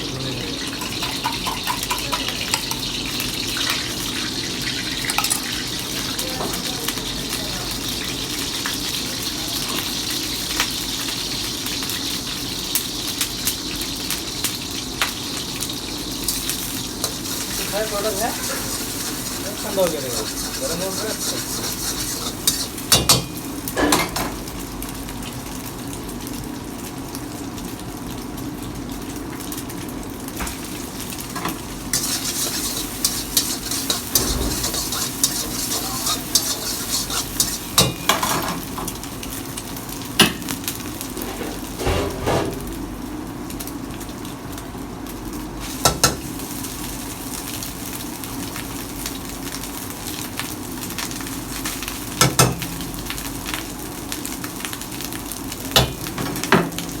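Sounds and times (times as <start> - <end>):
food sizzling in a hot pan: 0.0 - 41.9, 42.5 - 57.0
metal spatula scraping a pan: 17.0 - 23.3, 31.9 - 38.6.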